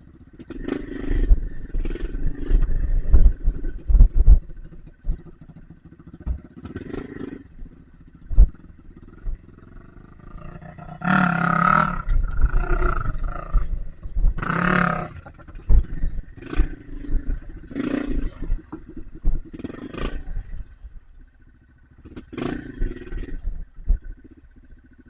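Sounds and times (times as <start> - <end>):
dirt bike engine revving: 0.3 - 25.0
low knocks and thumps: 1.2 - 5.6, 6.2 - 6.7, 7.6 - 9.5, 11.7 - 21.0, 23.1 - 24.3.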